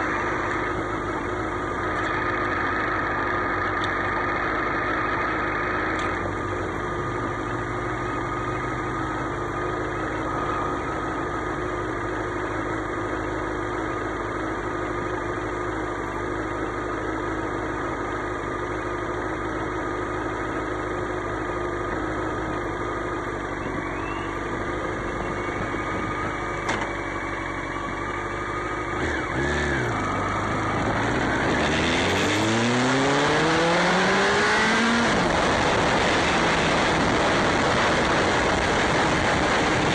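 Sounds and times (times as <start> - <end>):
motorcycle engine revving: 19.0 - 39.9.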